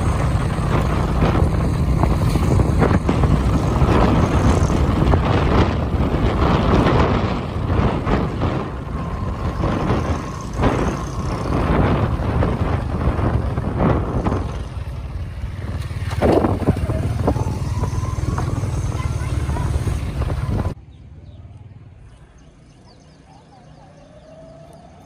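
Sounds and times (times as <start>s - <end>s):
small motorcycle engine droning: 0.0s - 25.0s.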